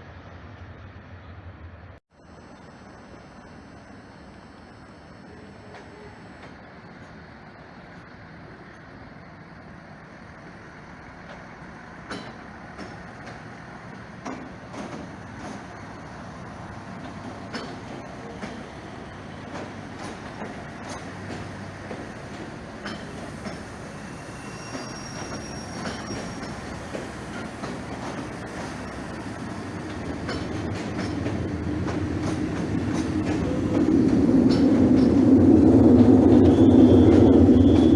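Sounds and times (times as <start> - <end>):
train rumbling on rails: 5.3 - 37.9
thin high whine: 22.8 - 30.1
wheels clicking over rail joints: 29.8 - 35.4.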